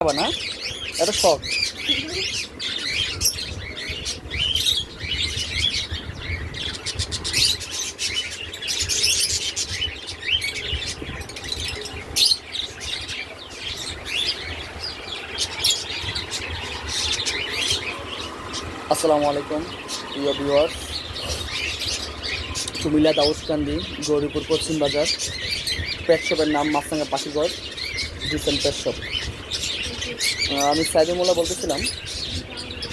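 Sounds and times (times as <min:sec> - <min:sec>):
caged birds chirping: 0:00.0 - 0:32.9.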